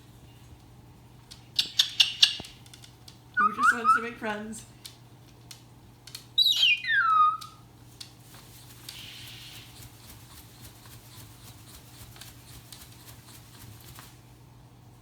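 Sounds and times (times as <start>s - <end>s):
cockatoo whistled call: 3.4s - 4.1s, 6.4s - 7.6s.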